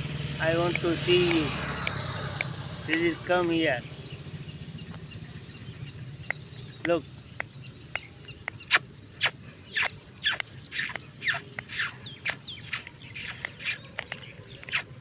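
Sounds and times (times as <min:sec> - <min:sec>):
puppies squealing: 0:08.7 - 0:14.0, 0:14.6 - 0:15.0.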